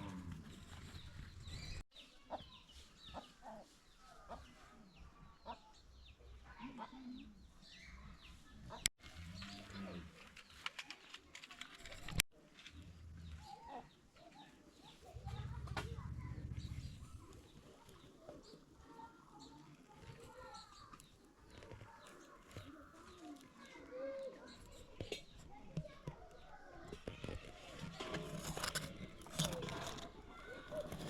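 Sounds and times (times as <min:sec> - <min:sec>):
low rumble: 0:15.1 - 0:17.5.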